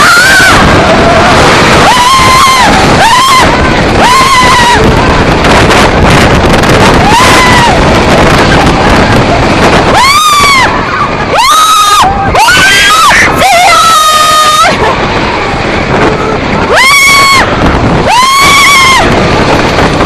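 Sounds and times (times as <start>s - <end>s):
riders screaming: 0.0s - 5.6s, 6.7s - 8.9s, 9.7s - 15.2s, 16.1s - 19.5s
roller coaster train rumbling: 0.0s - 20.0s
wind rushing on microphone: 0.0s - 20.0s.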